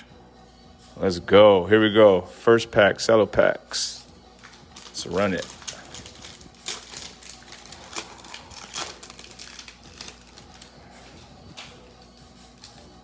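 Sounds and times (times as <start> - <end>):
cellophane wrapper crinkling and tearing: 4.4 - 12.9.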